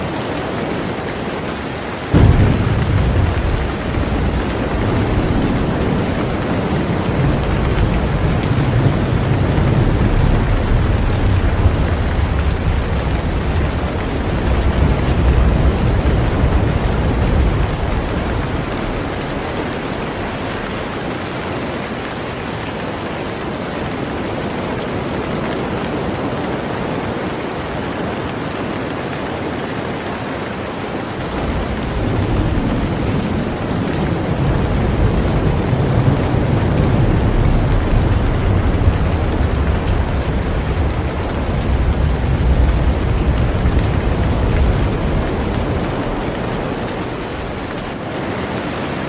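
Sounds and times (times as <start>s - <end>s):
heavy rain on boat: 0.0s - 49.0s
deep low rumble: 2.2s - 20.4s.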